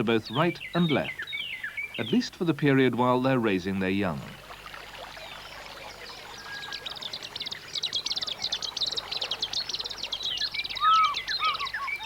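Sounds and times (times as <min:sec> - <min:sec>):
rapid high bird chirps: 0:05.2 - 0:12.0
low looping bird whistles: 0:06.3 - 0:12.0.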